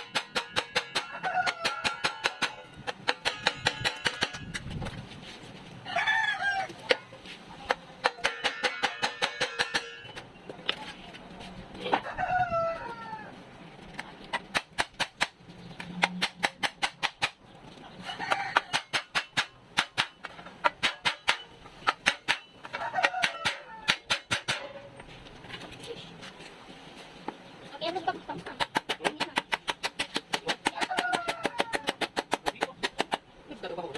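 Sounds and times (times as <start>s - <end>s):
rooster crowing: 1.0s - 2.3s, 5.8s - 6.9s, 12.0s - 13.3s, 18.0s - 18.9s, 22.7s - 23.9s, 30.9s - 31.9s.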